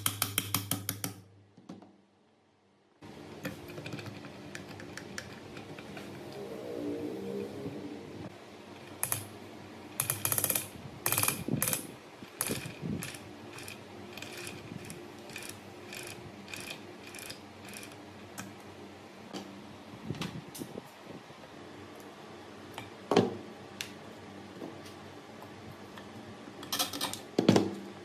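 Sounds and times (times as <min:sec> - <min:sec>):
metallic mechanical clicking: 0:08.8 - 0:09.3, 0:10.0 - 0:18.4.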